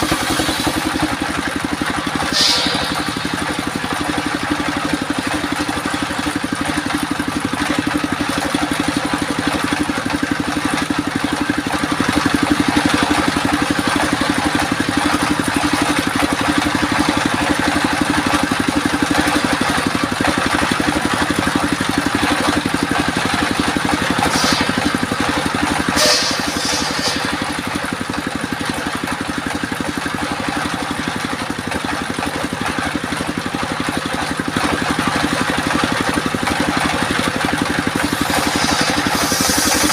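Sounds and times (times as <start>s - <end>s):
circular sawmill running: 0.0s - 39.9s
high-pitched saw scrapes: 2.1s - 4.5s, 24.0s - 25.2s, 25.9s - 27.9s, 38.0s - 39.9s.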